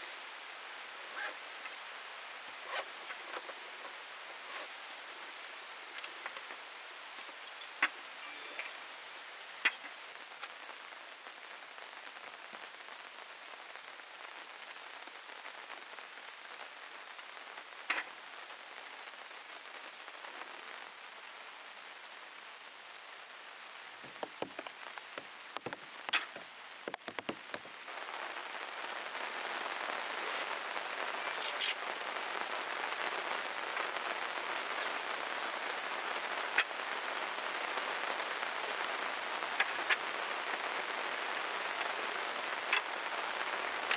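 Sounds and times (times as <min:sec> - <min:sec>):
rain pattering on plastic: 0:00.0 - 0:43.9
knocks: 0:24.0 - 0:27.8.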